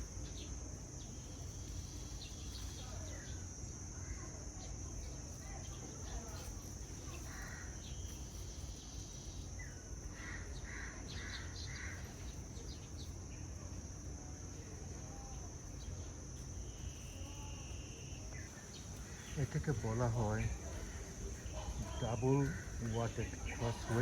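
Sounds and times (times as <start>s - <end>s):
high-pitched insect drone: 0.0s - 24.0s
birds calling: 5.5s - 13.8s, 15.8s - 24.0s.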